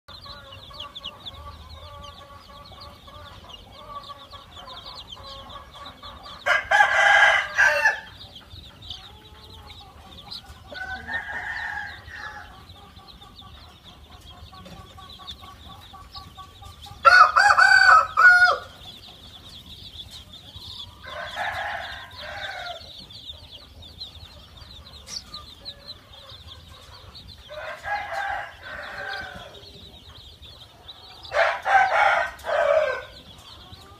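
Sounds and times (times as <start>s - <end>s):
chickens clucking: 0.1s - 33.9s
rooster crowing: 6.4s - 8.2s, 10.7s - 12.7s, 17.0s - 18.8s, 20.8s - 23.0s, 27.4s - 29.8s, 31.2s - 33.2s.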